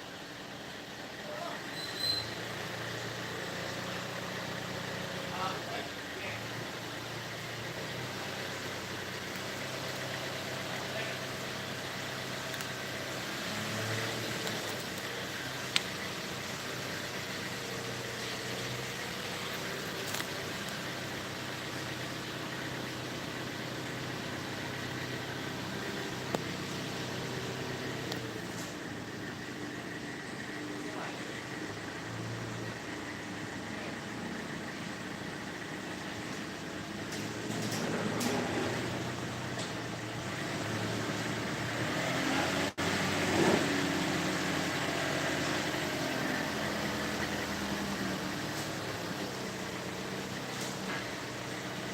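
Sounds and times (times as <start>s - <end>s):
vehicle engine idling: 0.0s - 51.9s.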